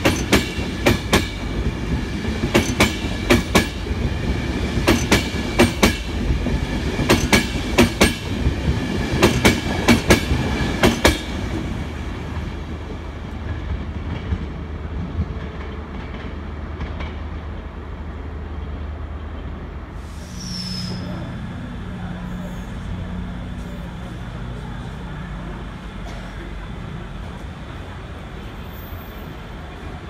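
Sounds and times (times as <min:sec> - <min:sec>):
train wheels clacking over rail joints: 0:00.0 - 0:11.7
train rumble: 0:00.0 - 0:30.0
brief high squeal: 0:20.0 - 0:21.3.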